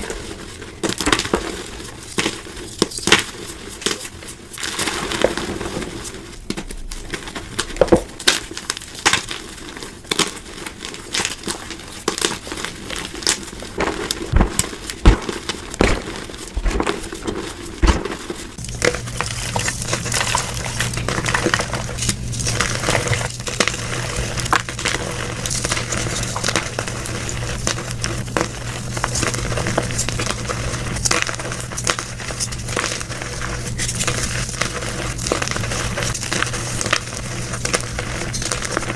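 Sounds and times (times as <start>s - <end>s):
chalk being crushed and crumbled: 0.0s - 38.9s
steady low hum: 12.6s - 38.9s.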